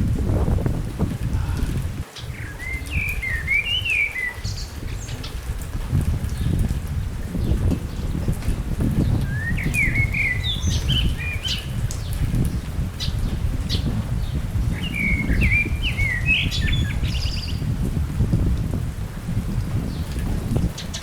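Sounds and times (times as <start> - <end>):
steady low rumble: 0.0 - 3.6, 4.4 - 20.7
songbird chirping: 1.6 - 17.8.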